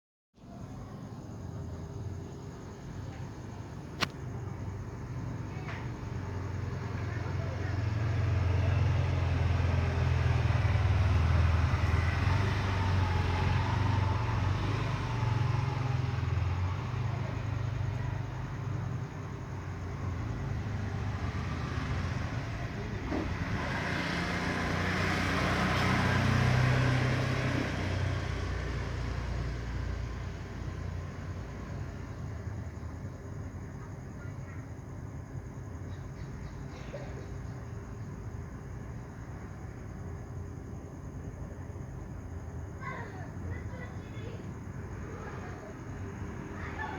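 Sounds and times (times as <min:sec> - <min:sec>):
traffic engine rumble: 0:00.4 - 0:46.9
vehicle passing: 0:06.6 - 0:31.0, 0:43.5 - 0:46.9.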